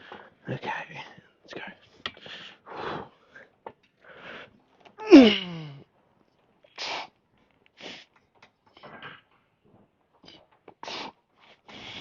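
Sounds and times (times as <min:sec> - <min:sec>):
man breathing hard: 0:02.1 - 0:05.8, 0:10.8 - 0:12.0
man grunting: 0:05.0 - 0:05.8.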